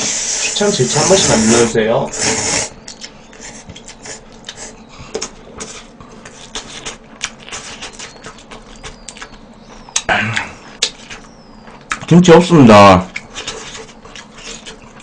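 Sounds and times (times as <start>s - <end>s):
wet chewing smacks: 2.8s - 12.2s, 13.1s - 15.0s.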